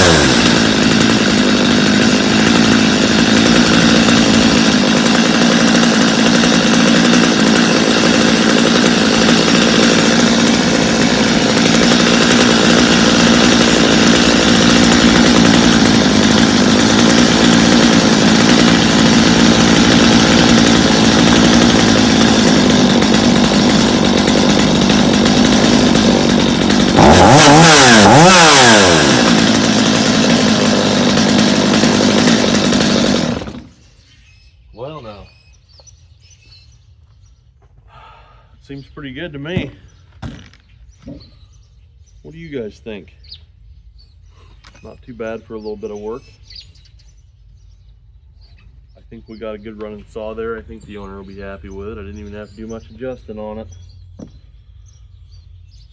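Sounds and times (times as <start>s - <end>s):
chainsaw idling and revving: 0.0s - 34.0s, 44.4s - 46.4s, 49.0s - 55.9s.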